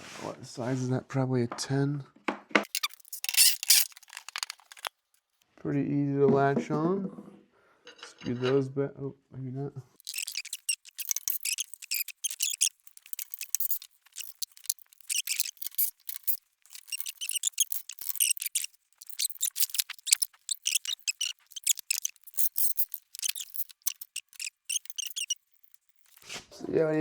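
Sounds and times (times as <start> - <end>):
hand tools clicking and scraping: 2.6 - 4.9, 10.0 - 26.4.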